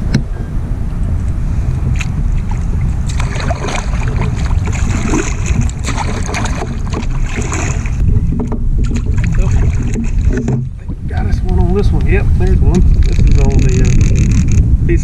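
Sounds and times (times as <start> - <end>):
wind buffeting microphone: 0.0 - 15.0
gear knocking and clattering: 12.7 - 14.6.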